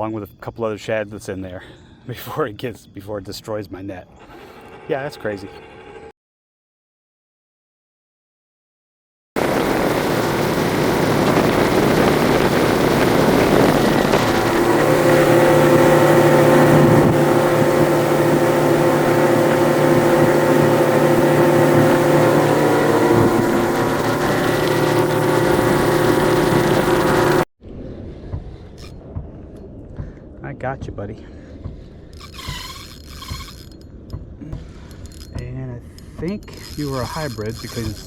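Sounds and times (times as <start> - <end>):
water rushing noise: 9.4 - 27.4
outboard motor drone: 9.4 - 27.5, 31.6 - 33.8, 36.4 - 38.0.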